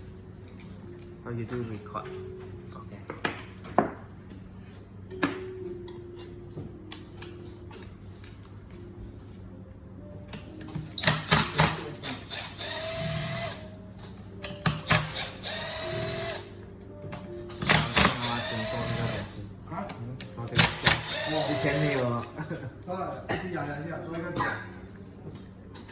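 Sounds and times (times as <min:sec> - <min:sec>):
small motor whirring: 0:12.1 - 0:13.7, 0:20.8 - 0:22.1.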